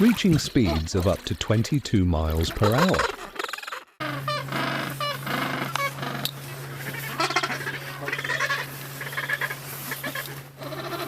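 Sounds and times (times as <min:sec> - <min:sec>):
penguins braying: 0:02.3 - 0:11.0
steady low hum: 0:04.0 - 0:11.0.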